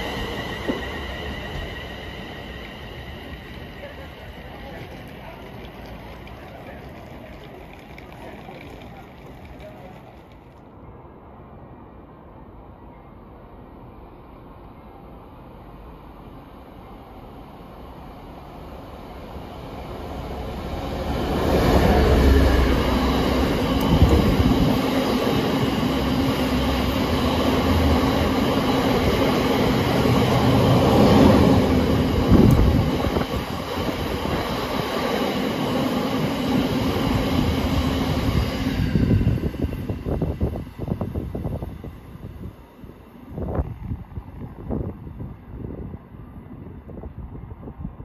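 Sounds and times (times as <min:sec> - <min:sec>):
freight wagons rumbling: 0:00.0 - 0:10.6, 0:21.0 - 0:38.4
diesel locomotive engine: 0:00.0 - 0:13.0, 0:14.5 - 0:48.0
wheels knocking and clattering: 0:03.8 - 0:10.6.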